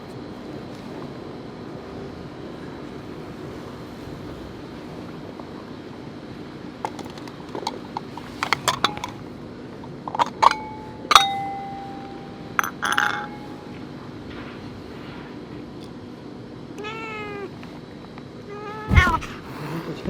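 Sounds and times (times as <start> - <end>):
metal clinking on food dish: 8.4 - 9.2, 10.2 - 11.8, 12.6 - 13.5.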